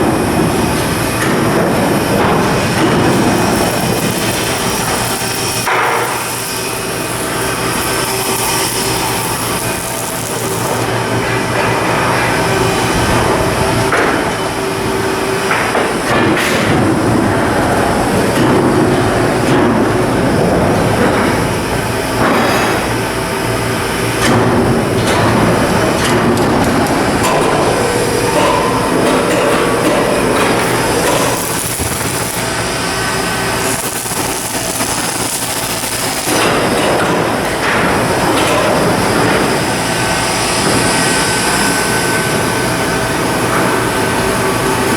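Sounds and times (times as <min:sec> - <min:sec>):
continuous clatter: 0:00.0 - 0:14.6, 0:24.2 - 0:44.9
machinery hum: 0:00.0 - 0:44.9.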